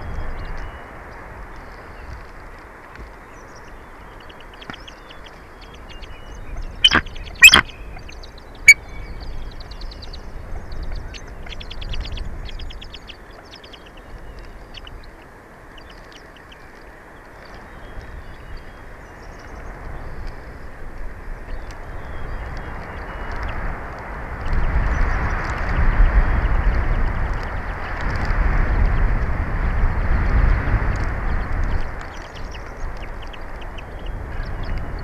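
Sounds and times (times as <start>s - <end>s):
eagles chittering: 3.6s - 17.5s, 31.0s - 35.0s
loud sharp eagle calls: 6.8s - 7.7s.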